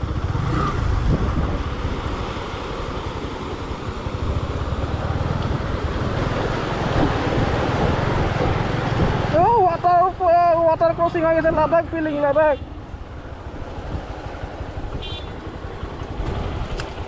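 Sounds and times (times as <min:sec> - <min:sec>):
wind on microphone: 0:00.0 - 0:02.5, 0:03.3 - 0:09.6
motorcycle engine: 0:00.0 - 0:17.0
water rushing: 0:00.0 - 0:17.0.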